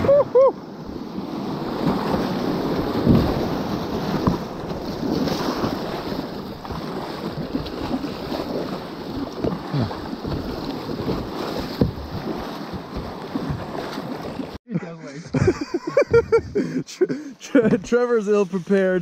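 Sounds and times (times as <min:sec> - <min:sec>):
water slapping kayak hull: 0:00.0 - 0:14.6.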